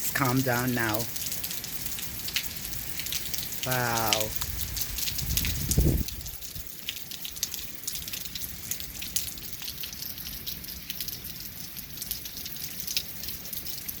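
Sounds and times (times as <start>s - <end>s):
rain hiss: 0.0s - 14.0s.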